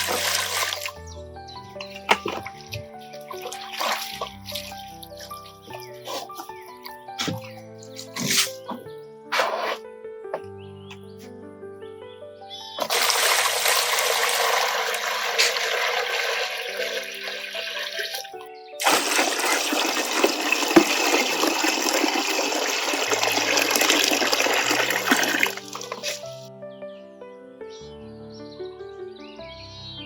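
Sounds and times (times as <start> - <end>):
water running and splashing: 0.0 - 1.0, 1.8 - 8.6, 12.8 - 26.5
background music: 0.0 - 30.0.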